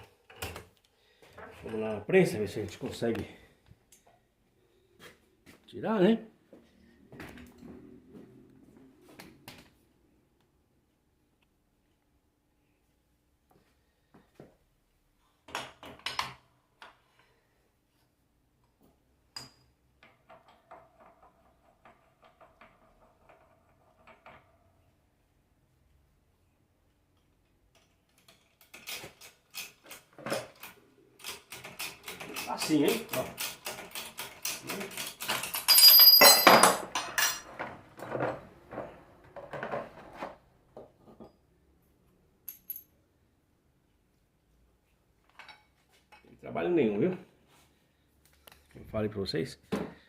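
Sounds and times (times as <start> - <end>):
metal parts clattering: 28.2 - 37.5
metal clinks and taps: 35.3 - 37.4, 42.4 - 42.9.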